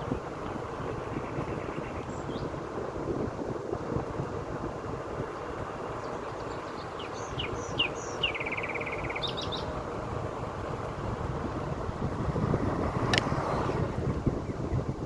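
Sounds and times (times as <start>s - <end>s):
wind rush: 0.0s - 15.0s
songbird chirping and trilling: 0.9s - 2.6s, 5.4s - 9.8s
car road noise: 8.1s - 15.0s.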